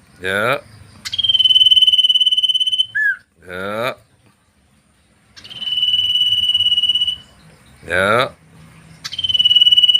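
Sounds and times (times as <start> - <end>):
cricket buzzing trill: 0.0 - 9.9
man calling out: 3.4 - 4.0.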